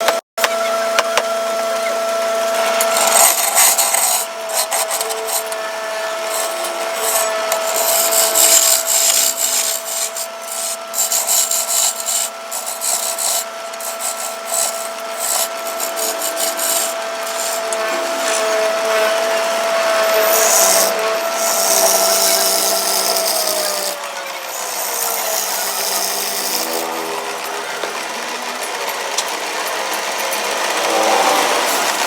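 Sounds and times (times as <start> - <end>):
power carving tool motor whine: 0.1 - 32.0
tool rasping on wood: 2.6 - 32.0.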